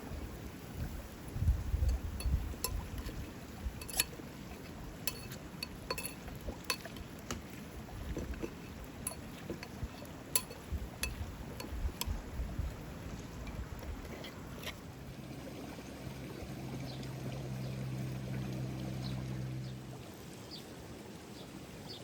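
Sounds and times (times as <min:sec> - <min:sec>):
cooking gear clinking: 0:01.9 - 0:07.4, 0:08.2 - 0:12.1.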